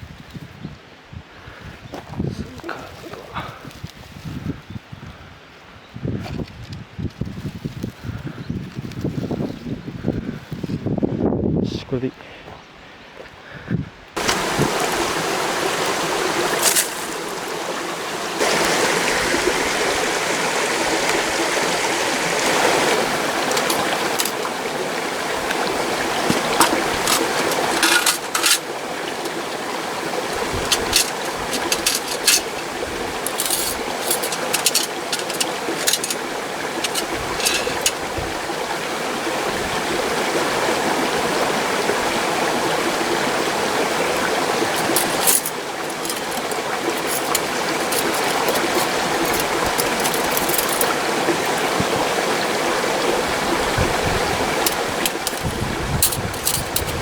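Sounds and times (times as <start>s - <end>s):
stream rushing: 14.2s - 57.0s
sharp clicks and knocks: 23.4s - 24.5s, 30.3s - 38.0s, 44.8s - 51.6s.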